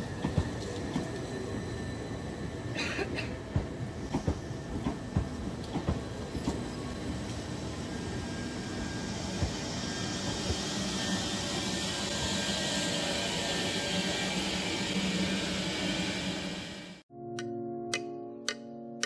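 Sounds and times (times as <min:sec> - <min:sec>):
electric train hum and hiss: 0:00.0 - 0:17.0
train wheels knocking: 0:00.2 - 0:01.2, 0:03.5 - 0:06.6.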